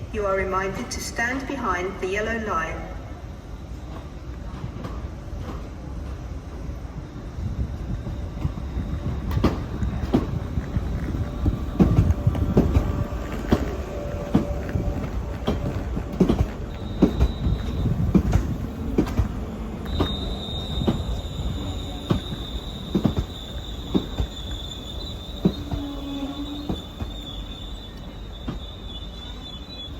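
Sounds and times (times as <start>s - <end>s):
train wheels clacking over rail joints: 9.3s - 28.8s
high wheel or brake squeal: 19.9s - 29.9s.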